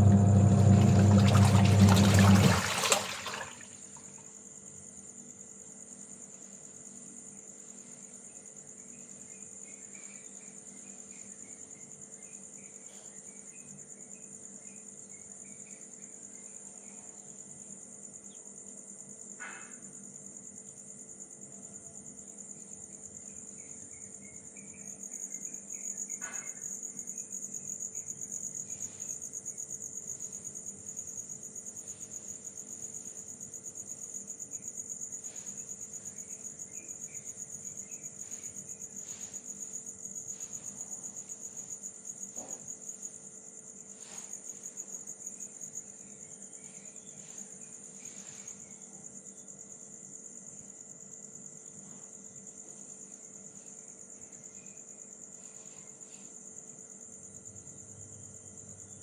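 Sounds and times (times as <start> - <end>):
faint hum: 0.0 - 3.8
insects chirping: 0.0 - 59.0.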